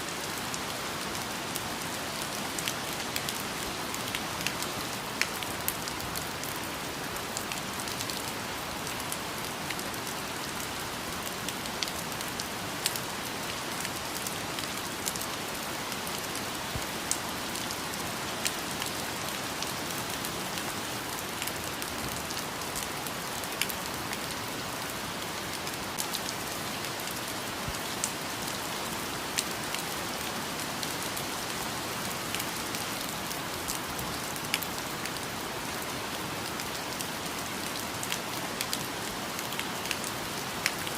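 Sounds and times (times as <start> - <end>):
raindrops hitting close by: 0.0 - 40.9
steady rain falling: 0.0 - 40.9.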